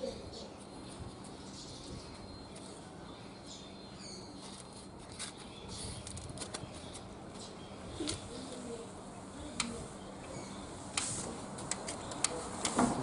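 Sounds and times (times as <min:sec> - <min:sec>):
bird chirp: 0:00.0 - 0:08.8, 0:09.4 - 0:10.8
small clicks and crackles: 0:04.4 - 0:07.1.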